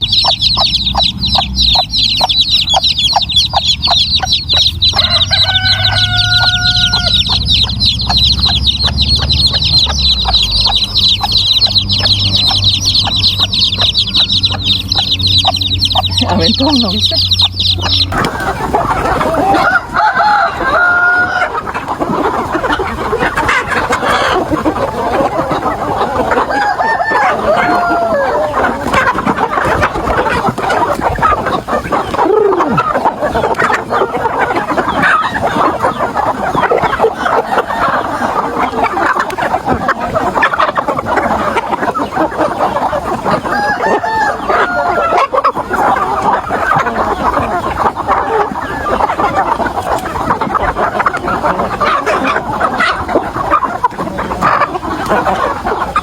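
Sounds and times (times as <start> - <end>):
chicken drawn-out calls: 0.0 - 56.0
chickens clucking: 0.0 - 56.0
rooster crowing: 3.9 - 15.5, 17.6 - 31.0, 43.0 - 47.2.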